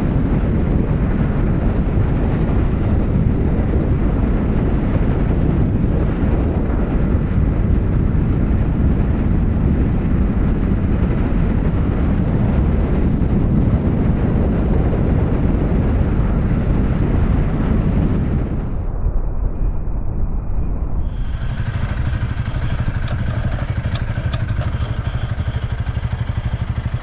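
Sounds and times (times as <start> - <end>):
wind rushing over microphone: 0.0 - 27.0
motorcycle engine cruising: 21.0 - 27.0.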